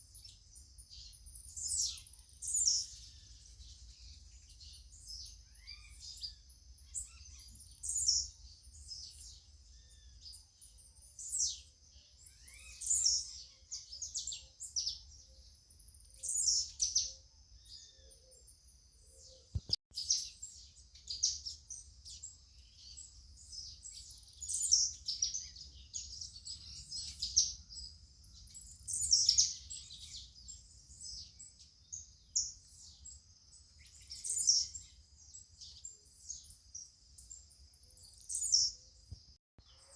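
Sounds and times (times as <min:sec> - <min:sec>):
songbirds chirping: 0:00.0 - 0:39.9
brief click: 0:19.5 - 0:19.8.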